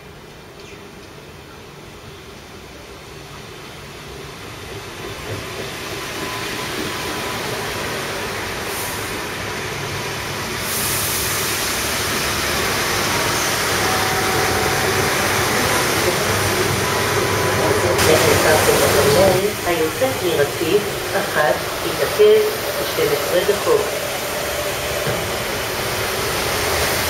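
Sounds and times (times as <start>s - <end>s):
train wheels running on rails: 3.5s - 27.0s.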